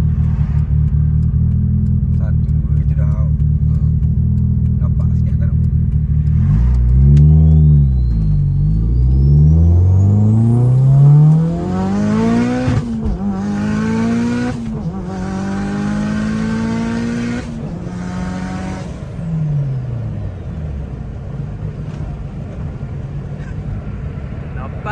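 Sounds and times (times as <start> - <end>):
car engine accelerating: 0.0 - 24.9
turbo whistle: 7.4 - 10.2.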